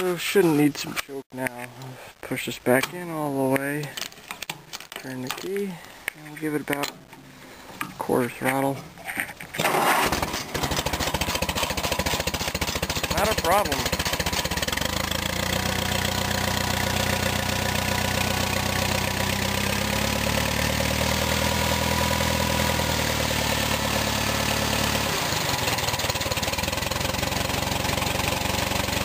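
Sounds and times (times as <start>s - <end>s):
tractor engine running: 9.6s - 29.0s.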